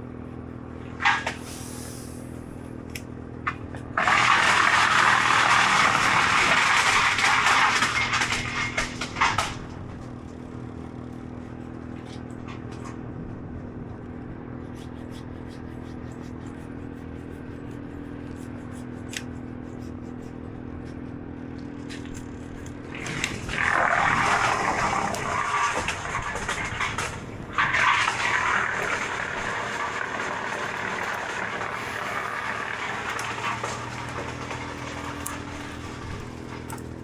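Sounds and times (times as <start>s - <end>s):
engine running: 0.0s - 37.0s
loud rushing scraping noise: 22.8s - 36.6s.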